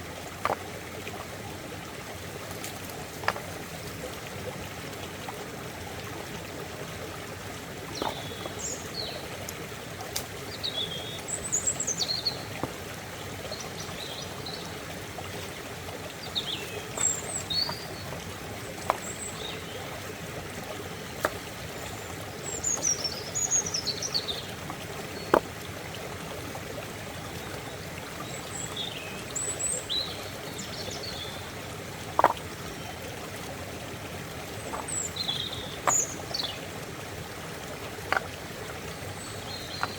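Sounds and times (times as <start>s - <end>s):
stream flowing and trickling: 0.0s - 39.9s
small birds chirping: 7.9s - 9.3s, 10.5s - 12.7s, 16.2s - 20.1s, 21.7s - 25.4s, 34.6s - 36.7s, 38.9s - 39.9s.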